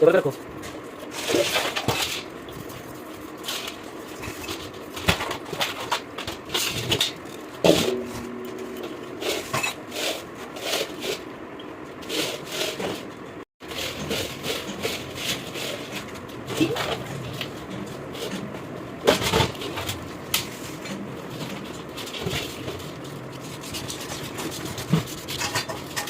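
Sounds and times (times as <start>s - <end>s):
brief ringing tone: 7.8s - 9.8s.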